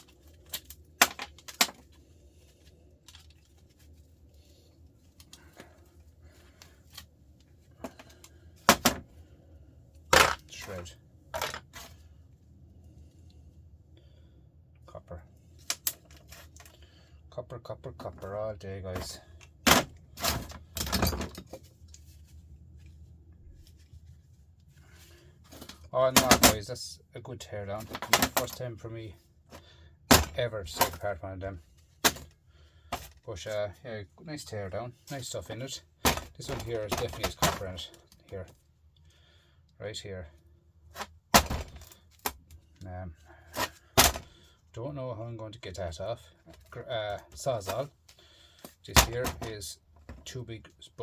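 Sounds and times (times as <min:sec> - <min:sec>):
steady low hum: 0:00.0 - 0:51.0
metal parts clanking: 0:19.7 - 0:21.6.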